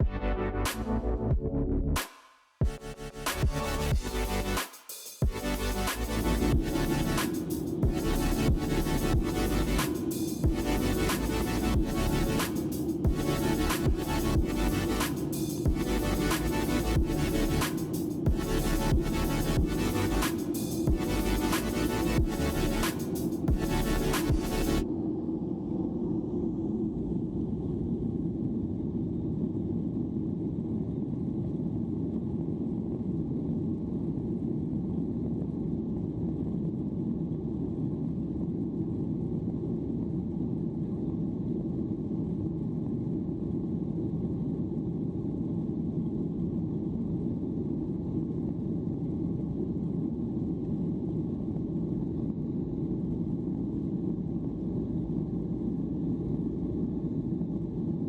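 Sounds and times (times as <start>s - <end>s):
jet engine drone: 5.8s - 26.8s
airflow around fuselage: 7.2s - 23.6s.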